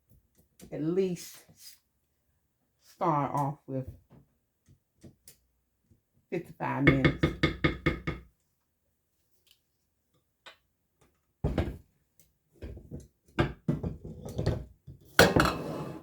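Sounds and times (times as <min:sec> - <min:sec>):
knocks and clatter of kitchen items: 0:06.9 - 0:08.3, 0:11.4 - 0:11.9, 0:12.6 - 0:16.0.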